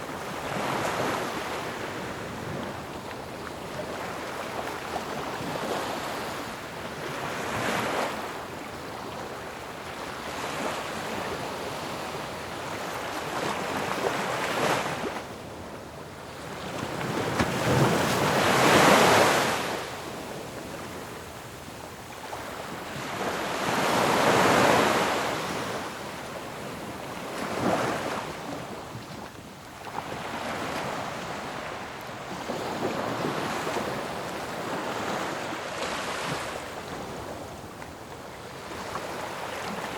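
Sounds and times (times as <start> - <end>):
ocean waves crashing: 17.2 - 20.0.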